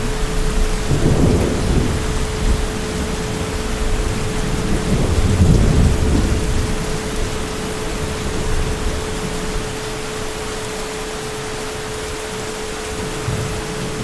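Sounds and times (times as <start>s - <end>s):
distant thunder rumble: 0.0s - 10.3s
heavy rain falling: 0.0s - 14.0s.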